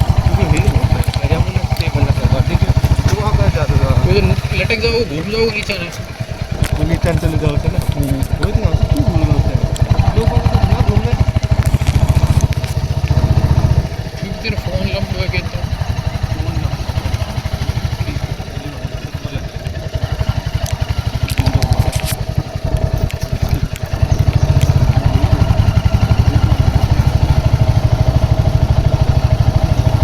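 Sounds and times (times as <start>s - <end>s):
light rattles: 0.0s - 30.0s
motorcycle engine running: 0.0s - 30.0s.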